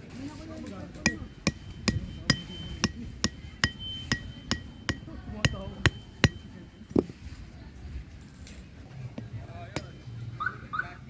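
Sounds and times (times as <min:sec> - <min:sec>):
hammering with metallic ring: 0:00.5 - 0:07.2, 0:09.5 - 0:10.2.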